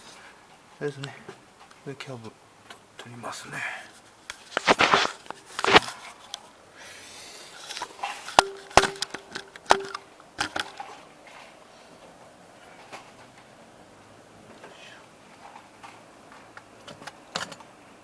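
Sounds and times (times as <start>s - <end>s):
metal parts clinking and knocking: 7.6s - 11.0s.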